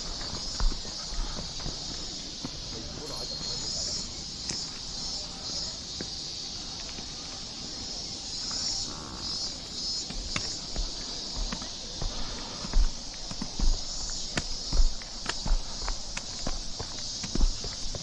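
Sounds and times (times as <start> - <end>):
footsteps: 0.0 - 3.2, 8.8 - 18.0
cicadas singing: 0.0 - 18.0.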